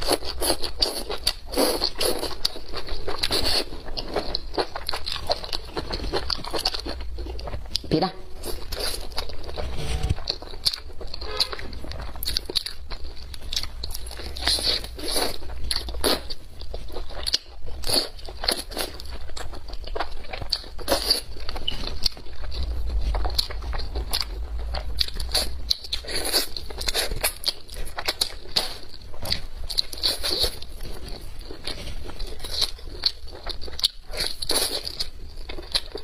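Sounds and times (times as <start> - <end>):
person chewing and biting food: 0.0 - 36.0
steady low hum: 4.6 - 17.1, 20.1 - 28.4.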